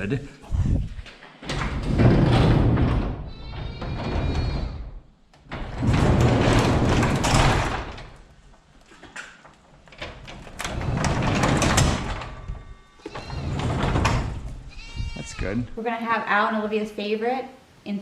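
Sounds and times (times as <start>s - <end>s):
garage door rolling along tracks: 0.8s - 8.6s, 9.4s - 14.7s.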